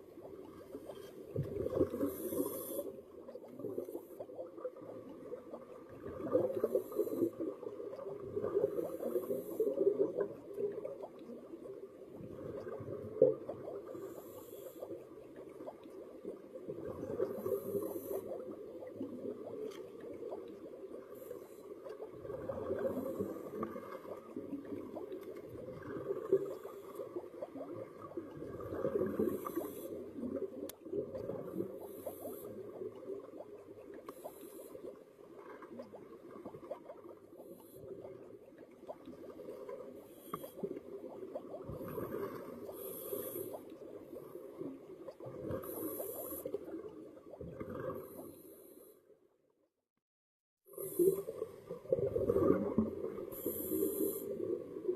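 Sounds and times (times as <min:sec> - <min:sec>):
exhaled bubbles crackling underwater: 0:00.0 - 0:48.8, 0:50.6 - 0:54.9
diver breathing through regulator: 0:01.9 - 0:03.0, 0:42.7 - 0:43.7, 0:53.3 - 0:54.4.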